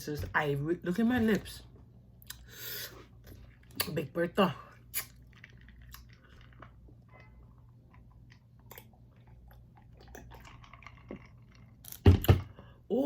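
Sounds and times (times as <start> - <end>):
chewing and biting seafood: 4.9 - 12.0.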